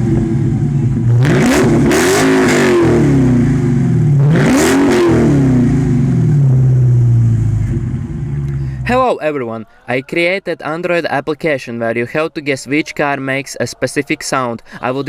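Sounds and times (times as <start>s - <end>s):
car engine idling: 0.0s - 9.0s
car engine revving: 0.0s - 9.0s.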